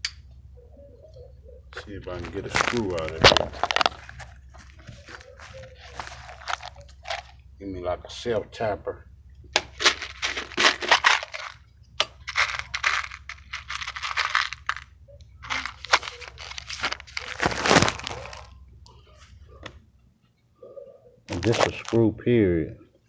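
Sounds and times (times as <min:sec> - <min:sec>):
metal hardware clinking and scraping: 0:02.2 - 0:07.3, 0:09.6 - 0:14.8, 0:15.4 - 0:17.8.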